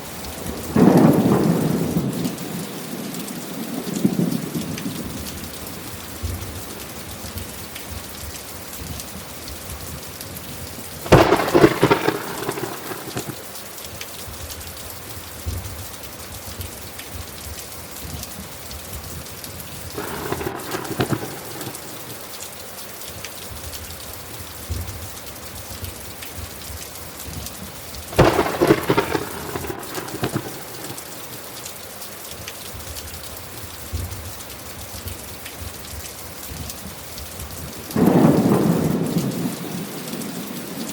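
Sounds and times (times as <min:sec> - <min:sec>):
heavy rain: 0:00.0 - 0:40.9
thunder claps: 0:00.3 - 0:02.8, 0:11.0 - 0:13.6, 0:19.8 - 0:22.4, 0:27.3 - 0:31.6, 0:35.0 - 0:40.9.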